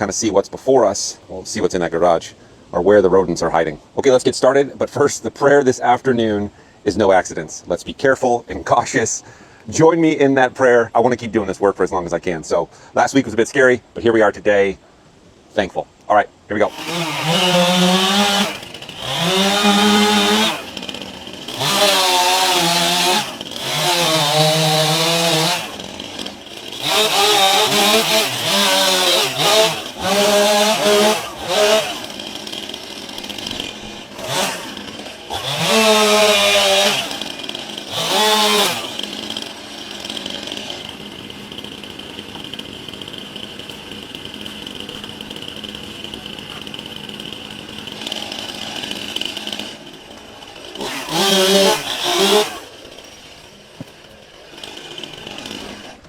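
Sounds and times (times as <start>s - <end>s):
chainsaw revving: 16.6s - 56.0s.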